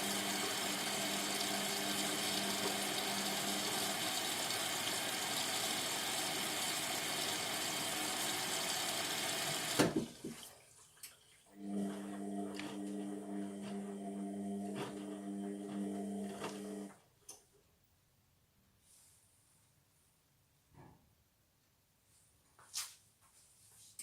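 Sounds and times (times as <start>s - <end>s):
washing machine filling with water: 0.0s - 16.9s.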